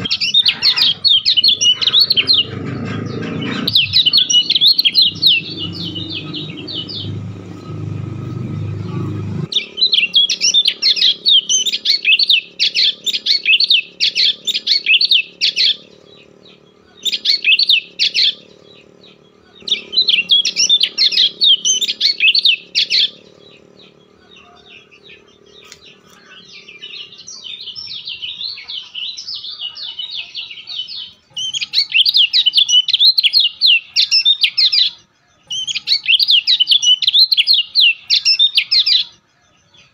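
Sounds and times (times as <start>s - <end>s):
low rumble: 0.0s - 11.5s
low steady hum: 0.0s - 29.2s
bird chirping: 0.0s - 39.9s.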